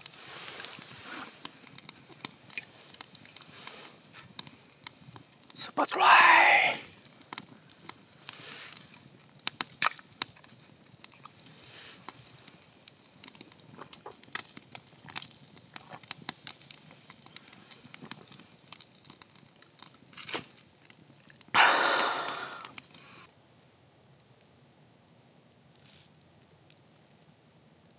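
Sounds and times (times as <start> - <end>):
small clicks and crackles: 0.0 - 5.6, 6.9 - 21.5, 22.6 - 24.6, 25.6 - 27.9
loud burst of noise: 21.6 - 22.7.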